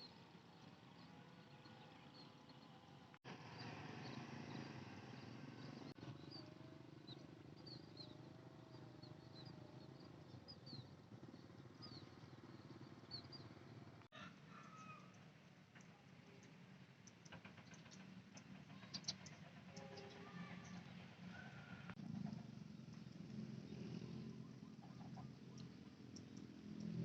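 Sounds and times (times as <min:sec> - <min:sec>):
small birds chirping: 0:00.0 - 0:13.9, 0:15.8 - 0:21.1, 0:22.6 - 0:27.0.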